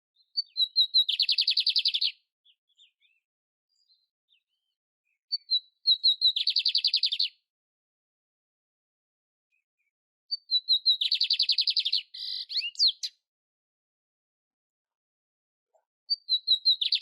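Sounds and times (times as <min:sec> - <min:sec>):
canary singing trills: 0:00.2 - 0:03.2, 0:03.8 - 0:07.4, 0:10.3 - 0:13.2, 0:16.1 - 0:17.0.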